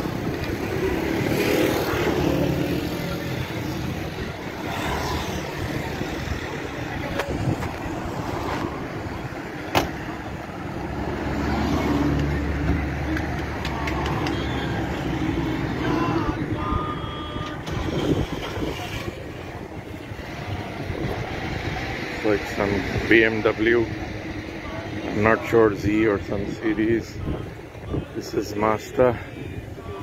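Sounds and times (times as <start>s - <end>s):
car engines in slow traffic: 0.0s - 30.0s.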